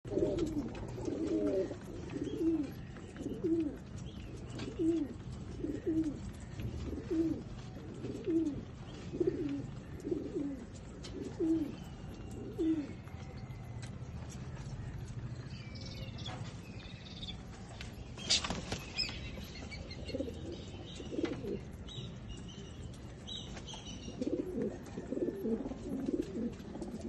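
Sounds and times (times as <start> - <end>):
pigeon cooing: 0.1 - 15.0, 19.6 - 21.8, 24.0 - 27.0.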